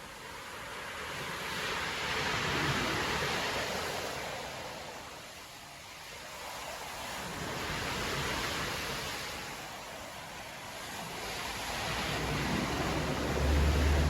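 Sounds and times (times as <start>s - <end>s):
surf breaking on a beach: 0.0s - 14.0s.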